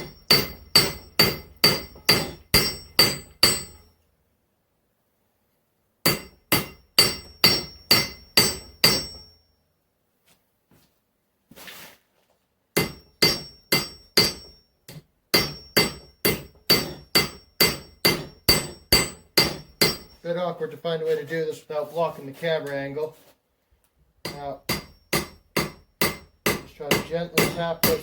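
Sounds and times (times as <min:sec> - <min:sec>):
hammer striking steel on anvil: 0:00.0 - 0:03.9, 0:06.0 - 0:09.4, 0:12.8 - 0:20.2, 0:24.2 - 0:28.0
soft scraping hiss: 0:11.5 - 0:12.4, 0:20.2 - 0:23.4.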